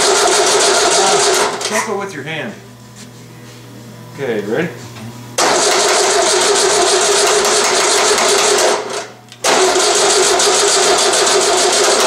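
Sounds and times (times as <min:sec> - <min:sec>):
car engine cranking on starter: 0:05.4 - 0:07.6, 0:08.4 - 0:12.0.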